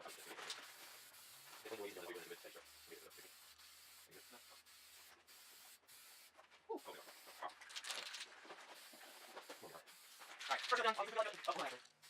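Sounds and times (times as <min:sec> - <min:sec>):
aerosol spray can hissing: 0:00.0 - 0:07.5, 0:08.7 - 0:12.0.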